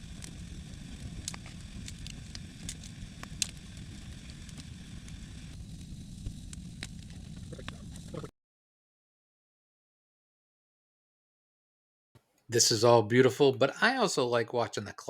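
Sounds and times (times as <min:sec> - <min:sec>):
campfire crackling and popping: 0:00.0 - 0:08.3
low rumble: 0:00.0 - 0:08.3.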